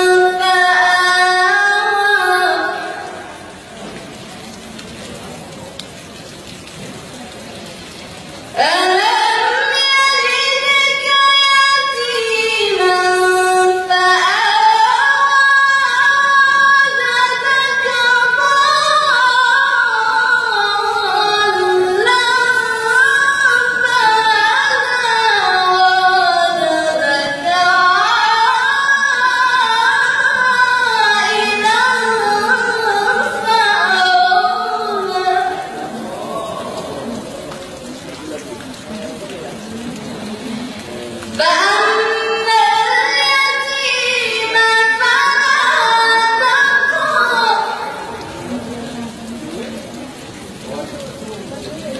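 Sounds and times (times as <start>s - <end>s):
woman reciting melodically: 0.0s - 3.7s, 8.5s - 36.6s, 41.3s - 48.2s.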